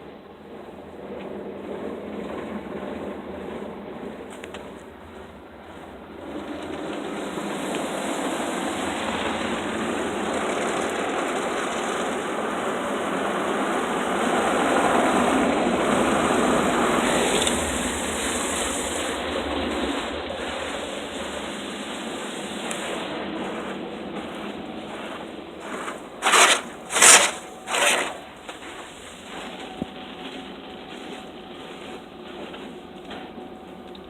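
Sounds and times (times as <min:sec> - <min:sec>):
car wash spray rushing: 0:05.8 - 0:29.6.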